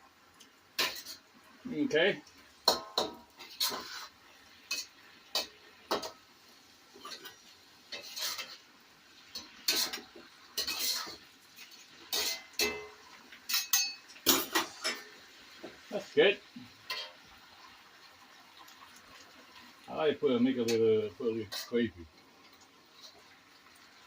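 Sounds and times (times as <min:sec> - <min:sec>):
metal utensil scraping cooking pan: 0:00.8 - 0:01.3, 0:02.6 - 0:06.3, 0:06.9 - 0:16.0, 0:16.8 - 0:17.3, 0:20.5 - 0:22.0.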